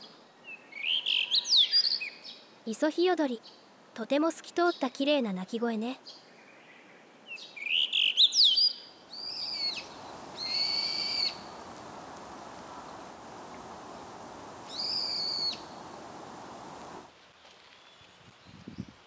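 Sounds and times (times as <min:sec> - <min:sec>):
outdoor background hiss: 0:00.0 - 0:19.0
rising whistled bird song: 0:00.4 - 0:02.3, 0:07.3 - 0:11.6, 0:14.0 - 0:16.8
shrill high bird calls: 0:07.6 - 0:11.7, 0:14.0 - 0:17.0.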